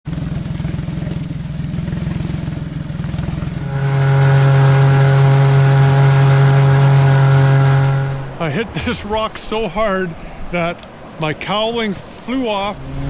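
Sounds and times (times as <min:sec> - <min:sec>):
outboard engine running: 0:00.1 - 0:09.3, 0:12.6 - 0:13.0.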